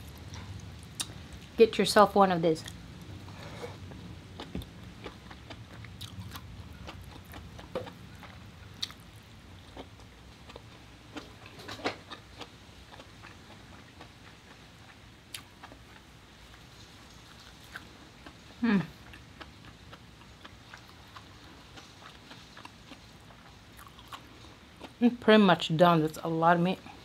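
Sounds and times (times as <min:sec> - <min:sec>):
person chewing wetly: 0:04.4 - 0:25.0.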